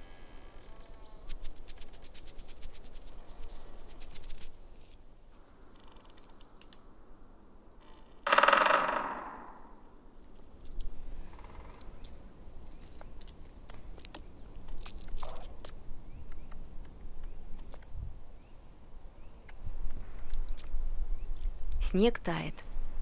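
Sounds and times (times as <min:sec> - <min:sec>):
high thin warbling bird song: 0:00.0 - 0:04.8, 0:09.1 - 0:23.0
small clicks and crackles: 0:00.0 - 0:05.0, 0:05.7 - 0:06.8, 0:11.7 - 0:17.9.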